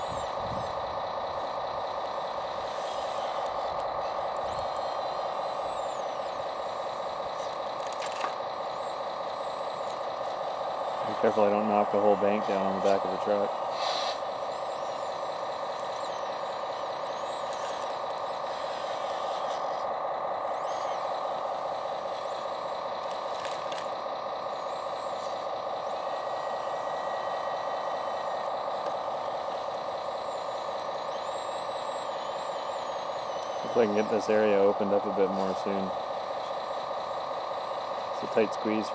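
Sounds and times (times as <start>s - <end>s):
small electric motor whining: 0.0s - 38.9s.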